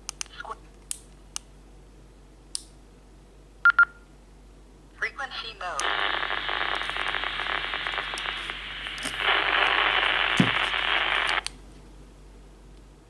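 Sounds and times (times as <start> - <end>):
radio static hiss: 5.1 - 11.5.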